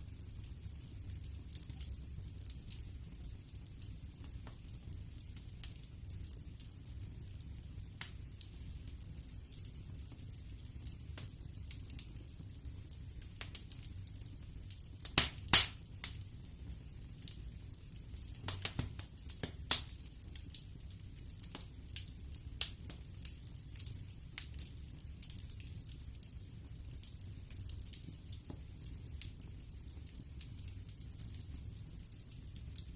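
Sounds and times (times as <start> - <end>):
low rumble of flames: 0.0 - 32.9
wood fire crackling and popping: 0.0 - 32.9.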